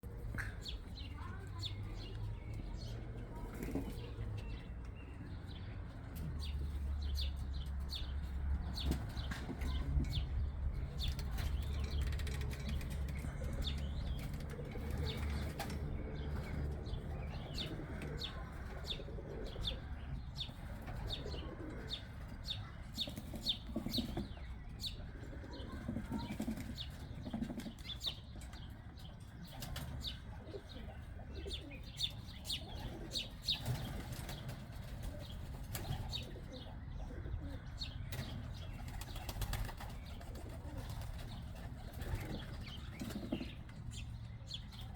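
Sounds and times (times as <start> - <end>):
pigeons cooing and chirping: 0.1 - 44.9
pigeon wings flapping: 38.8 - 43.4.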